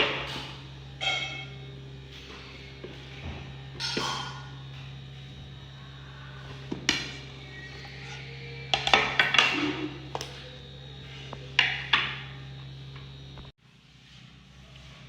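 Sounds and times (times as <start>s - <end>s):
low hum: 0.0s - 15.0s
kitchen utensils clinking: 7.8s - 10.5s.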